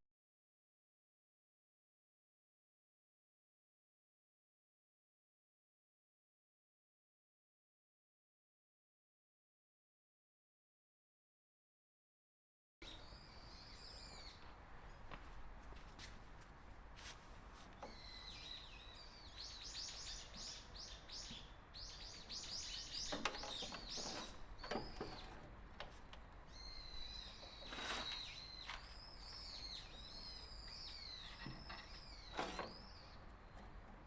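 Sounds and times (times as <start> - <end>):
small birds singing faintly: 12.8 - 34.0.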